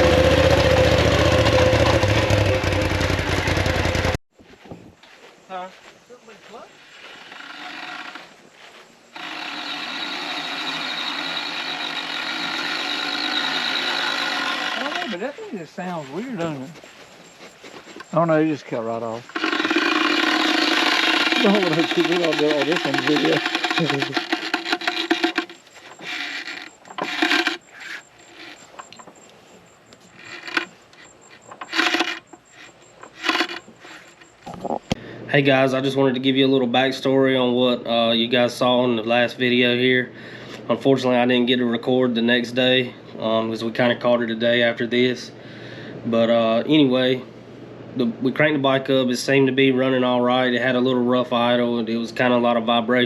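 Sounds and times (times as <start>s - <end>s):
rattly engine idling: 0.0s - 4.2s, 19.2s - 27.7s.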